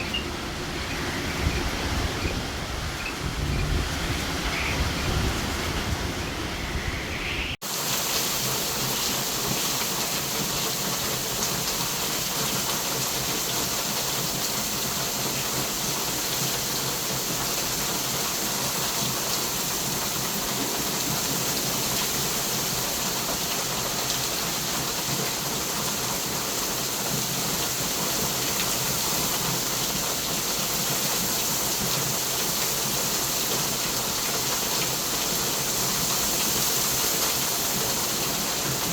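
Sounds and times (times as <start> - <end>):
deep wind rumble: 0.0 - 7.6
heavy rain hissing: 0.0 - 38.9.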